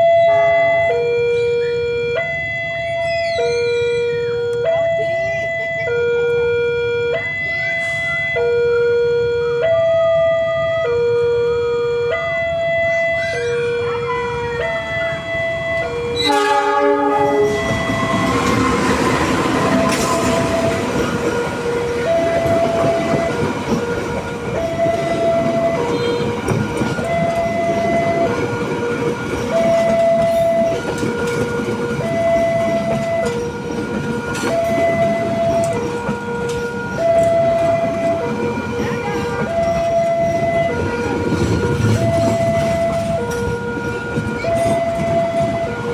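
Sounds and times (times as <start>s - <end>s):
level-crossing two-tone alarm: 0.0s - 45.9s
train passing with wheel clatter: 10.1s - 45.9s
train horn blast: 13.8s - 23.8s, 24.6s - 33.4s.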